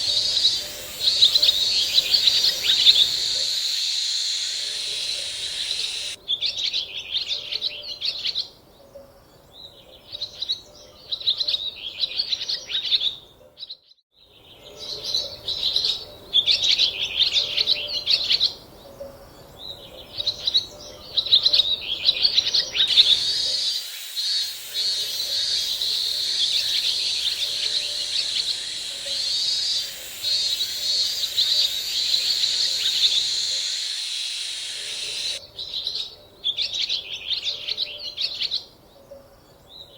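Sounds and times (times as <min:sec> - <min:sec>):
steady high hiss: 0:00.0 - 0:06.2, 0:21.8 - 0:35.4
small birds chirping: 0:00.0 - 0:13.8, 0:14.5 - 0:39.9.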